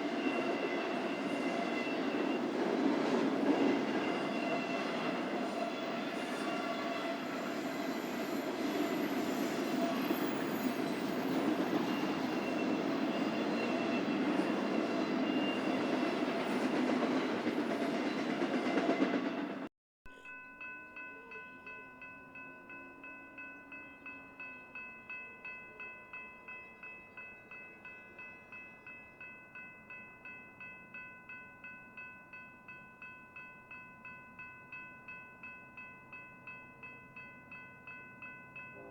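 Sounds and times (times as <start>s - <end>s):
railroad crossing bell ringing: 0.0s - 19.4s, 20.1s - 38.9s
freight train rumbling past: 0.0s - 19.7s.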